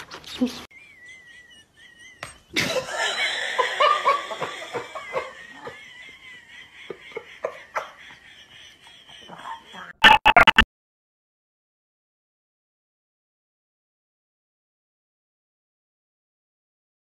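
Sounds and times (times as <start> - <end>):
person laughing: 0.9 - 10.0.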